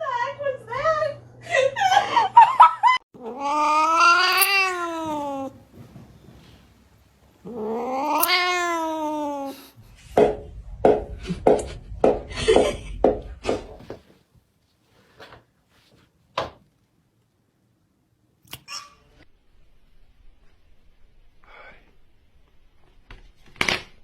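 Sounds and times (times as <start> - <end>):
cat yowling: 3.2 - 5.6, 7.4 - 9.7.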